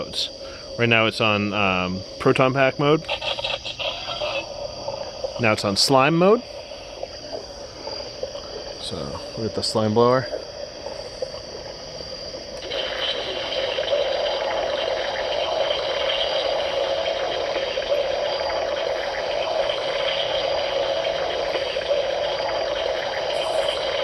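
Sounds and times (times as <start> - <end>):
gushing spray sound effect: 12.6 - 24.0.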